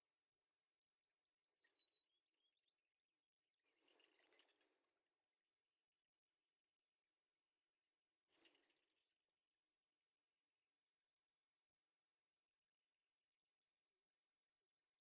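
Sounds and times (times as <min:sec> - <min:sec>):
small birds chirping: 0:00.0 - 0:02.9, 0:03.5 - 0:05.0, 0:08.3 - 0:09.0.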